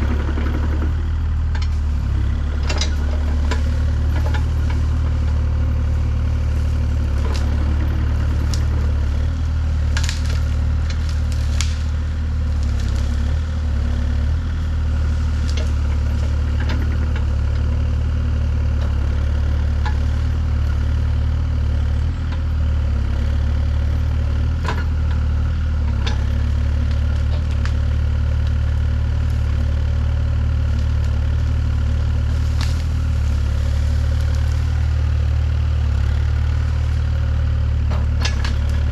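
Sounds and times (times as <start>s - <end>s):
engine running at low speed: 0.0s - 38.9s
sharp cracks and knocks: 1.6s - 13.5s, 15.0s - 17.3s, 30.6s - 37.2s.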